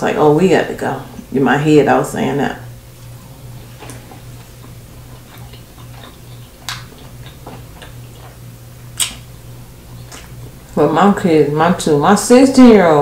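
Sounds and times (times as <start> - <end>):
low hum: 0.0 - 13.0
person chewing: 2.9 - 10.8
wet mouth clicks and lip smacks: 3.8 - 10.5.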